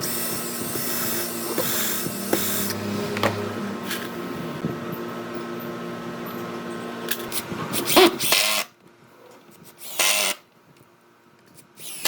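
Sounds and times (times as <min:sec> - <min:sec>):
small motor humming: 0:00.0 - 0:04.7.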